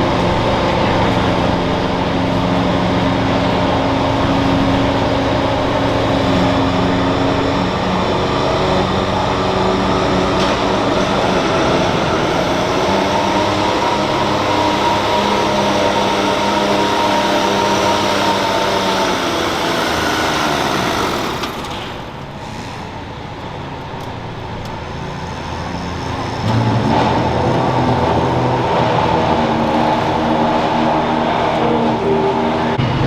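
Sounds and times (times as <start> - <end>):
garden tractor engine: 0.0 - 22.3
loud engine running: 0.0 - 22.6, 25.0 - 33.0.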